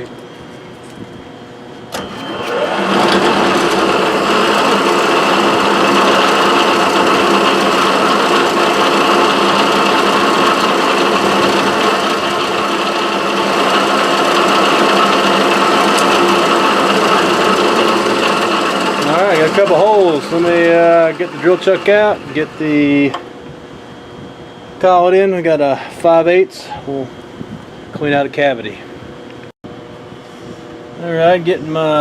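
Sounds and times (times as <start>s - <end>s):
motor hum with cutting hiss: 0.0s - 28.3s
milling machine drilling: 2.0s - 23.2s.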